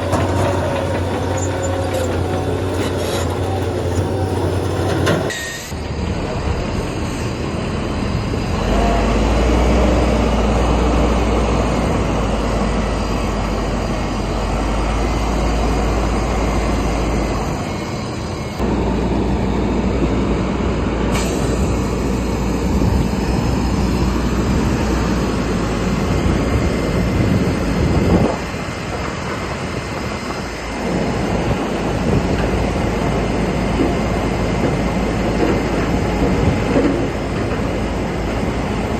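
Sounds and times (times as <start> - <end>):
crawler tracks clanking and squealing: 0.0 - 7.4, 28.2 - 38.9
diesel engine under load: 0.0 - 38.9.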